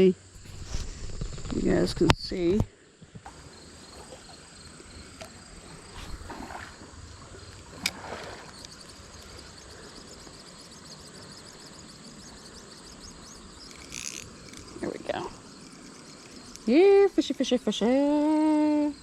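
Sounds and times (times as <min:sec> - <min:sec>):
faint insect drone: 0:00.0 - 0:19.0
creek water running: 0:00.3 - 0:19.0
water splashes: 0:00.4 - 0:09.6.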